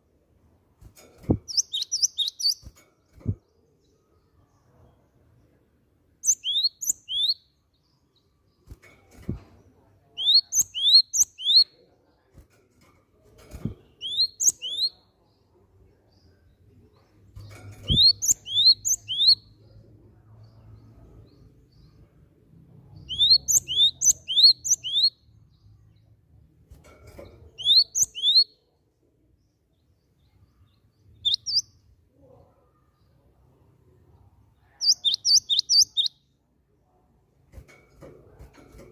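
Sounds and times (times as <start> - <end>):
bird singing whistled notes: 1.5 - 2.6, 6.2 - 7.8, 10.2 - 11.8, 14.0 - 15.0, 17.9 - 19.6, 23.0 - 25.2, 27.6 - 28.6, 31.1 - 31.8, 34.8 - 36.2.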